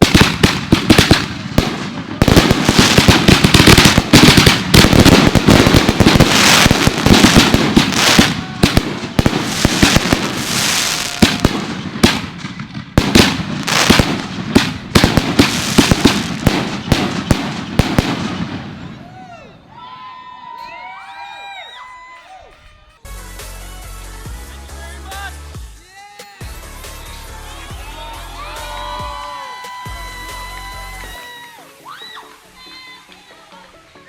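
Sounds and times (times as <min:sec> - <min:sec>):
fireworks barrage: 0:00.0 - 0:19.2.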